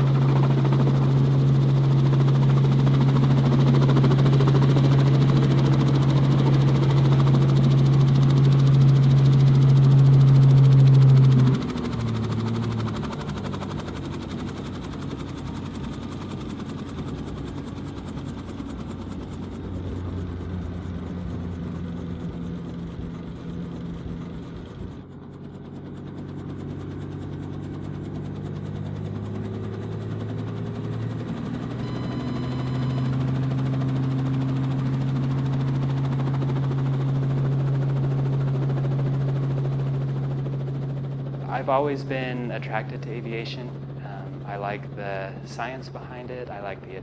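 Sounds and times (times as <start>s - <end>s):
helicopter engine and rotor: 0.0s - 47.0s.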